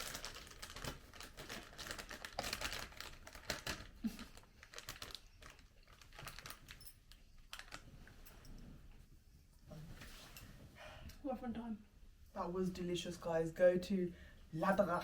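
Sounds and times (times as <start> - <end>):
packaging crinkling and rustling: 0.0 - 7.9.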